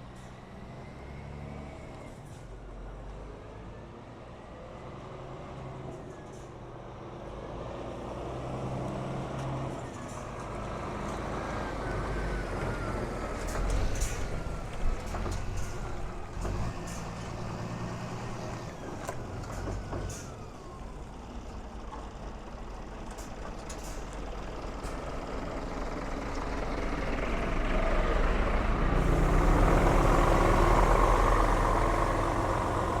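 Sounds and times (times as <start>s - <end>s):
diesel truck engine running: 8.1s - 33.0s.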